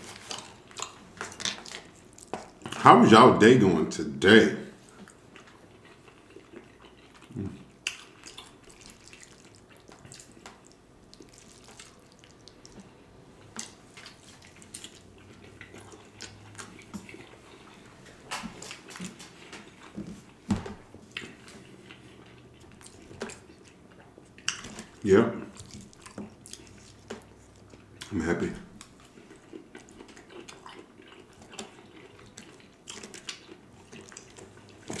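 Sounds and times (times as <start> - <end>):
wet chewing and mouth sounds: 0.0 - 2.8, 4.8 - 35.0.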